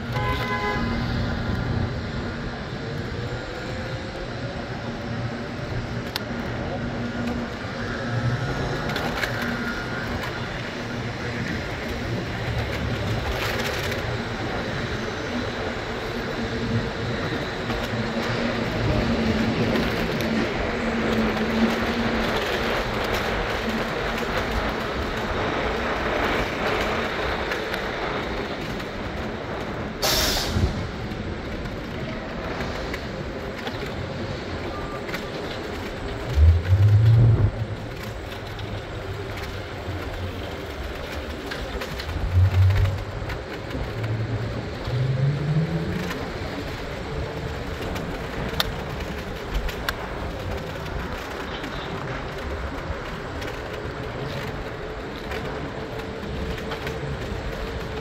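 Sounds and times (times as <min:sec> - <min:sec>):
train car rumbling and rattling: 0:00.0 - 0:58.0
air hiss: 0:30.0 - 0:30.8.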